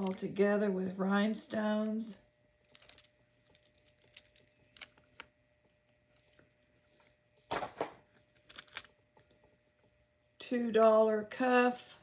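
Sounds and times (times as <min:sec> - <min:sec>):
jewelry pieces clicking: 0:02.6 - 0:05.0, 0:08.4 - 0:08.9.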